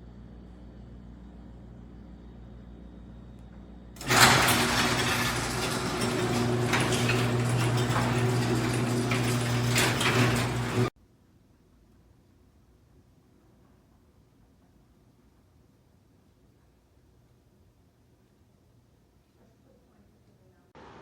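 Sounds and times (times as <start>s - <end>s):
garage door opener motor hum: 4.0s - 10.9s
garage door rattling: 4.0s - 10.9s.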